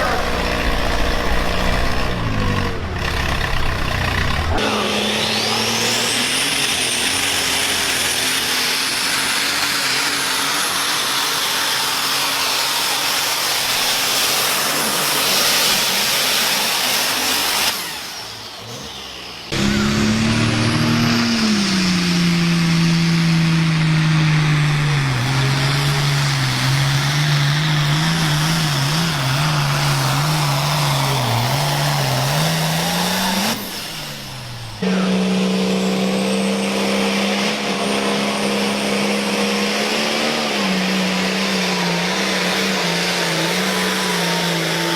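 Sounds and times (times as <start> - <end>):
tractor engine running under load: 0.0 - 4.6, 19.5 - 44.9
high whine rising in pitch: 19.5 - 25.6.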